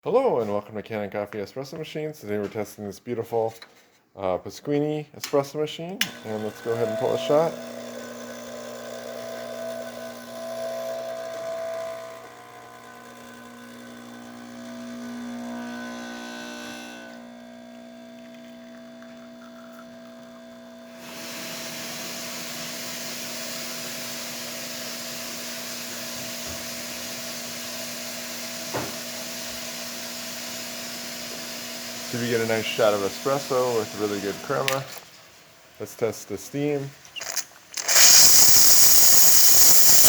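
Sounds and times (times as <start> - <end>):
espresso machine pump humming: 6.1 - 34.7, 37.2 - 40.0
steady hiss: 35.8 - 40.0.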